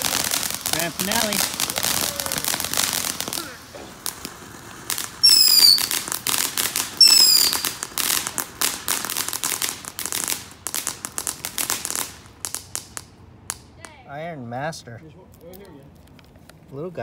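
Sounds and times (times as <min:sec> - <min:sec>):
firework whistles: 0:00.0 - 0:12.8
fireworks crackling: 0:00.0 - 0:17.0.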